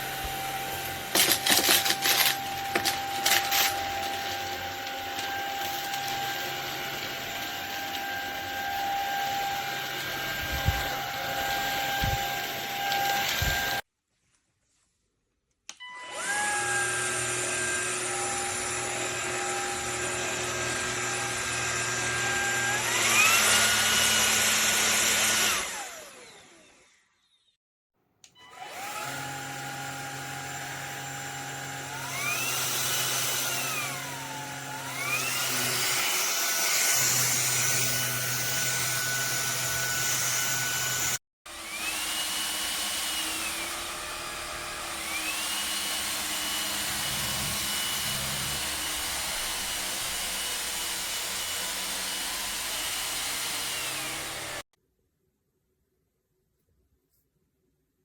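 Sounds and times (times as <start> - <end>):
stick vacuum cleaner whining: 0.0 - 13.9, 15.7 - 27.5, 28.2 - 54.7.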